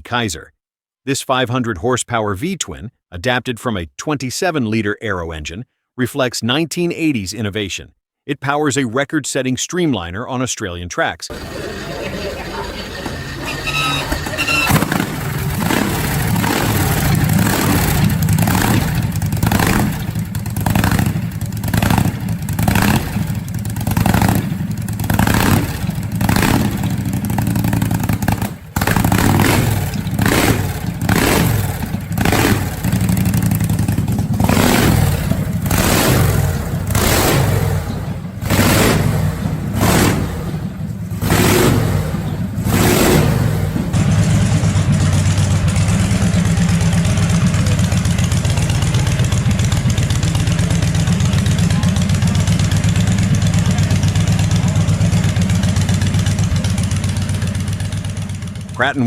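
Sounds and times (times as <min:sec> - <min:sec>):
exhaust popping: 0:11.3 - 0:59.0
motorcycle engine revving: 0:11.3 - 0:59.0.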